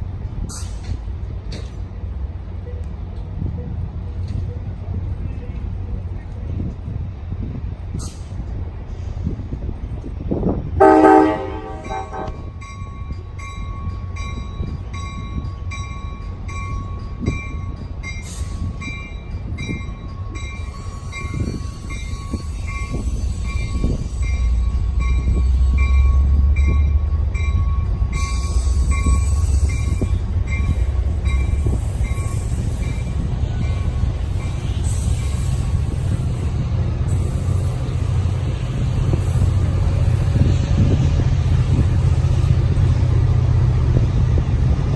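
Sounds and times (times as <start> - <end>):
train engine and wheel rumble: 0.0 - 44.9
wheel and rail hiss: 0.2 - 3.4, 5.5 - 12.3, 18.0 - 18.9, 20.6 - 26.5, 28.2 - 44.9
train horn blast: 10.8 - 12.5.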